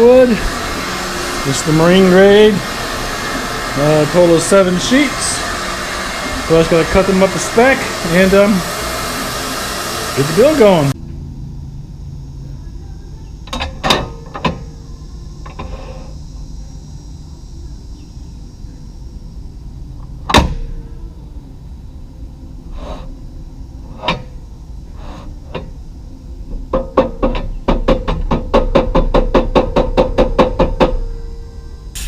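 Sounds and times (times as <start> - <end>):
steady background hum: 0.0 - 32.0.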